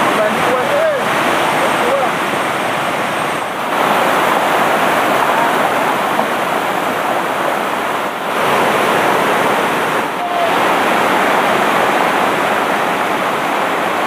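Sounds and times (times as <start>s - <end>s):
river rushing over rapids: 0.0s - 14.0s.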